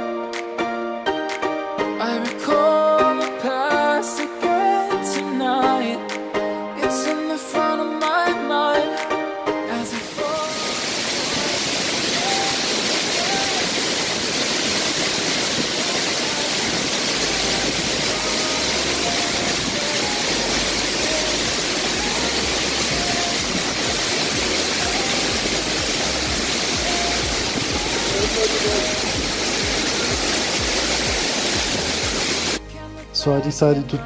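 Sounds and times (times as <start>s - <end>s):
waterfall rushing: 9.8s - 32.6s
faint background music: 15.9s - 34.0s.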